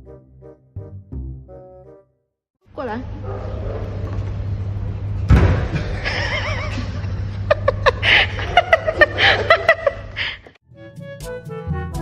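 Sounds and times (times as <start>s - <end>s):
person laughing in bursts: 5.8s - 10.4s.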